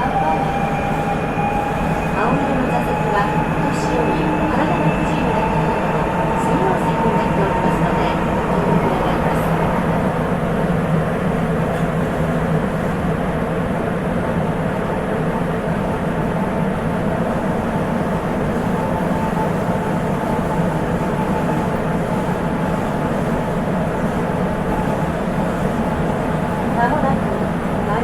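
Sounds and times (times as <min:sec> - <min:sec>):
train running rumble: 0:00.0 - 0:28.0.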